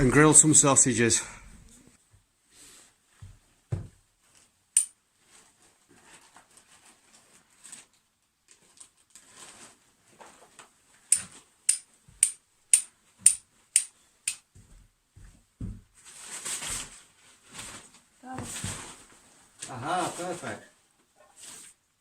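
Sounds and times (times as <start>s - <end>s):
cloth rustling: 13.0s - 22.0s.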